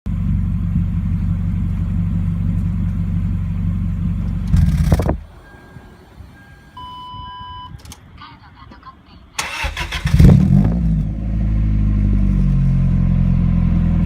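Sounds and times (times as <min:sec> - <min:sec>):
car engine idling: 0:00.1 - 0:06.8
short electronic beep: 0:05.4 - 0:07.8.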